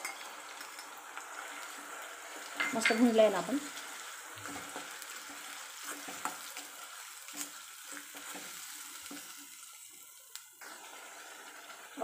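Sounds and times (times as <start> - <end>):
onions sizzling in oil: 0.0 - 12.0
spoon scraping pan: 4.4 - 9.6.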